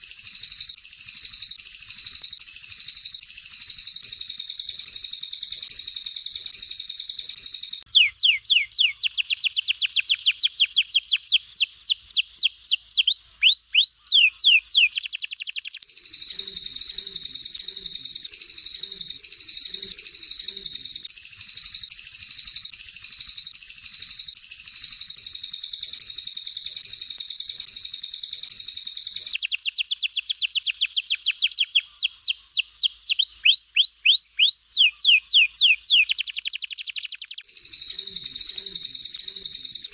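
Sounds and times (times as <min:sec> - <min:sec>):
high rolling bird trill: 0:00.0 - 0:25.7, 0:29.0 - 0:39.9
songbirds singing: 0:00.0 - 0:39.9
downward-sweeping whistled bird notes: 0:12.8 - 0:29.8, 0:30.9 - 0:39.9.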